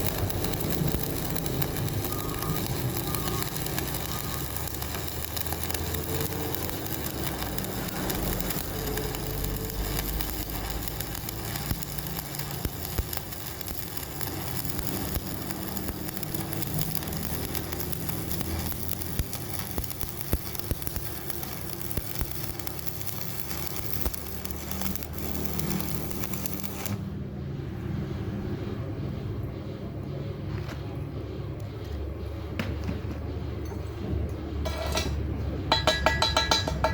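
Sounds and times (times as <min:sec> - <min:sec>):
arc welding crackling hiss: 0:00.0 - 0:27.1.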